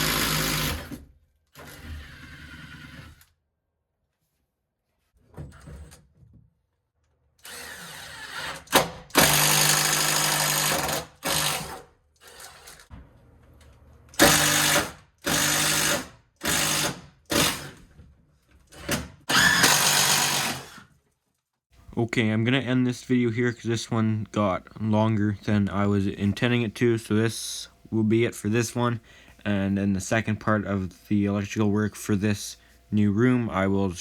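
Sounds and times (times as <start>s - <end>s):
power drill boring through wall: 0.0s - 1.0s, 1.6s - 3.3s, 7.4s - 12.9s, 14.2s - 17.8s, 18.7s - 20.9s.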